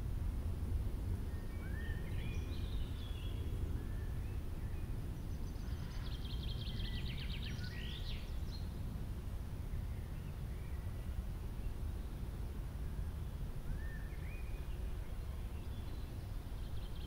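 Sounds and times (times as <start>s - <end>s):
low outdoor rumble: 0.0s - 7.6s
songbirds singing: 1.2s - 9.0s, 9.7s - 17.0s.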